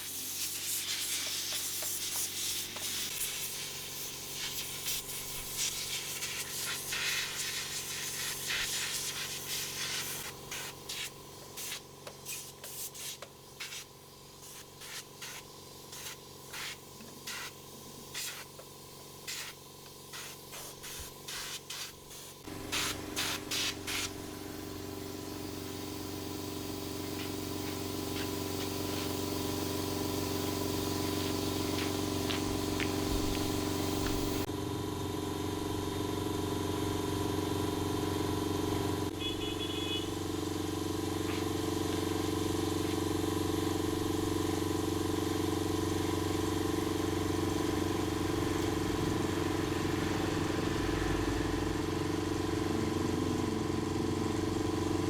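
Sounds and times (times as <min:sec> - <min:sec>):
motor humming: 0:22.4 - 0:34.5, 0:35.6 - 0:55.0.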